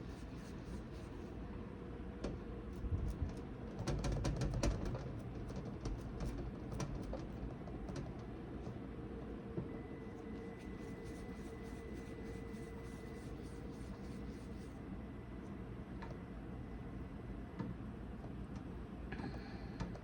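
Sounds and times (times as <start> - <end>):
light taps and clicks of dough: 2.2 - 8.8, 17.6 - 20.0.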